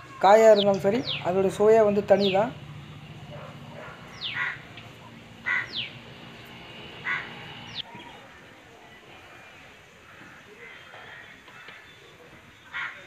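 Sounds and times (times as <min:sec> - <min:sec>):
harsh bird calls: 0:00.1 - 0:08.3.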